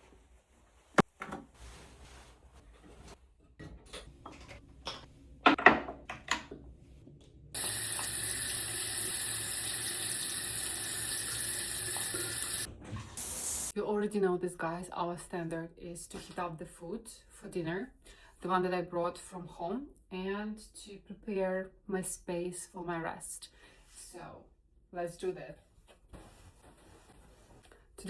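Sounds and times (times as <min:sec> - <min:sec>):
water running into sink: 0:07.6 - 0:13.7.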